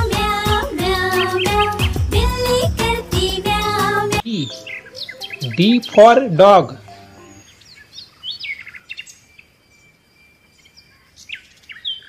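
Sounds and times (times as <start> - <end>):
small songbirds chirping: 4.2 - 12.0.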